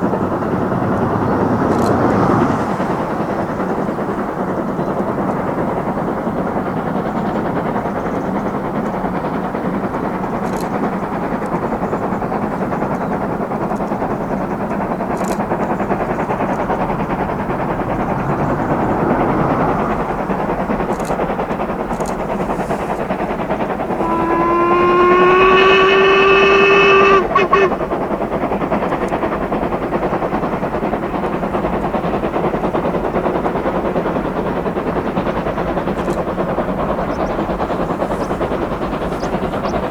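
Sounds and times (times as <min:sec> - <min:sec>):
steady rushing noise: 0:00.0 - 0:07.6, 0:15.5 - 0:28.7
steam locomotive whistle: 0:23.6 - 0:28.2.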